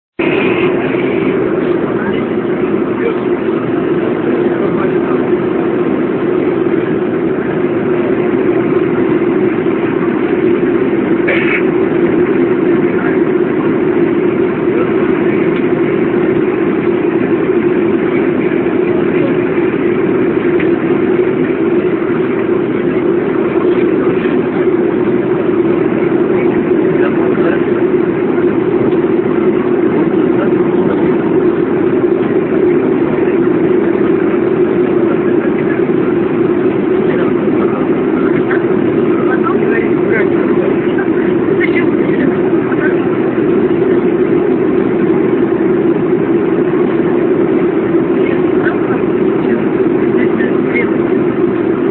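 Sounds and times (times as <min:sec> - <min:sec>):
jet engine drone in cabin: 0:00.1 - 0:51.9.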